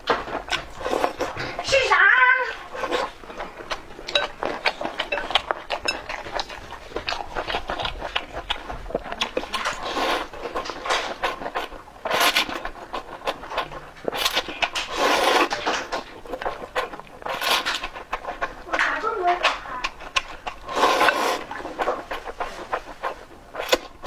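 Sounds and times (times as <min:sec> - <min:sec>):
utensils clicking against dishes: 0:04.0 - 0:07.8.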